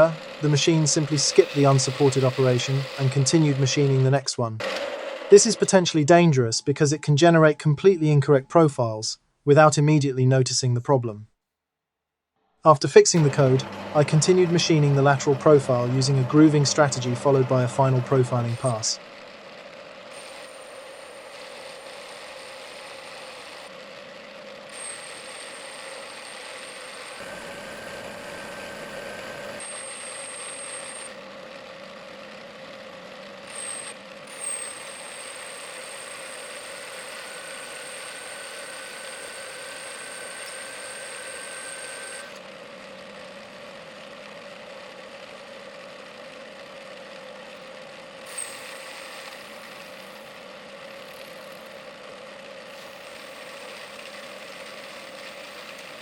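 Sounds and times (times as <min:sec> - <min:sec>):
high thin whine: 0:00.0 - 0:04.2, 0:13.0 - 0:19.0
lathe motor hum: 0:00.0 - 0:05.8, 0:13.1 - 0:56.0.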